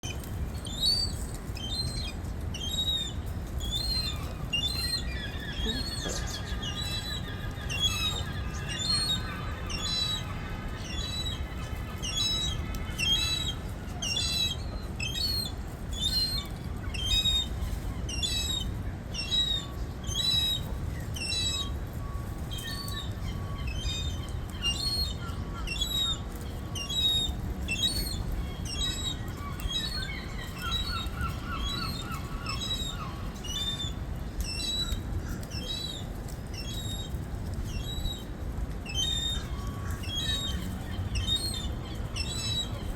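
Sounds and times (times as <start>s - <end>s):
gull crying: 5.5s - 7.0s.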